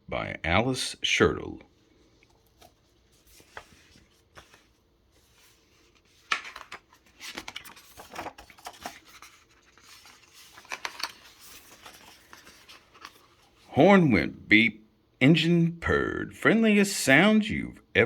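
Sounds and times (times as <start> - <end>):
paper pages rustling: 2.0 - 13.7.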